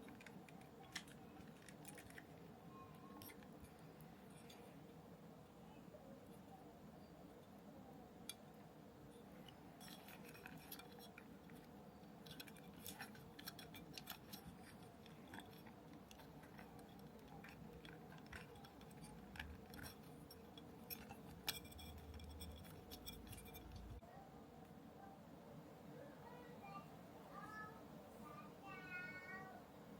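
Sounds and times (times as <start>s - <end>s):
small parts and tools clicking: 0.0s - 5.0s, 8.2s - 24.0s
low room hum: 0.0s - 29.9s.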